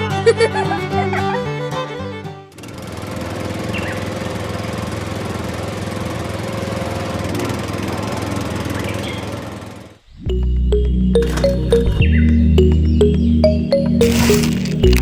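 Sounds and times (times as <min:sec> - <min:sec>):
small motor running: 0:02.5 - 0:10.0.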